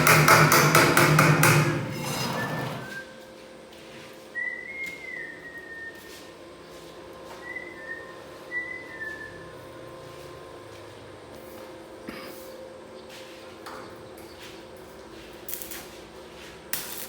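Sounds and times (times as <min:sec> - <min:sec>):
person whistling a tune: 0:04.3 - 0:06.4, 0:07.3 - 0:09.5.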